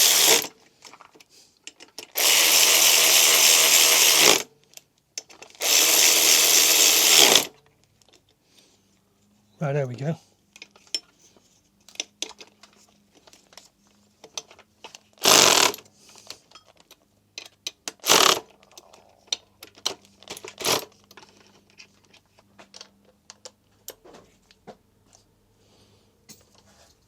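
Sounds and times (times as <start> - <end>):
tools clicking and clinking: 14.2 - 24.0.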